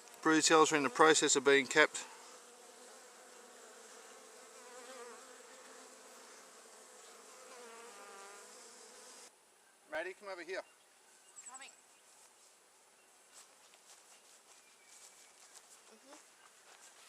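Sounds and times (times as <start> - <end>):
bees buzzing: 0.0 - 9.3.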